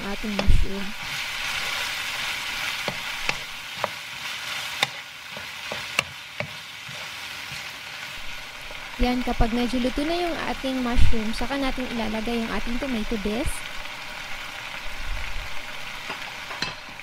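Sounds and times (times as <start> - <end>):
food sizzling in a pan: 0.0 - 17.0
spatula scraping: 0.2 - 7.8.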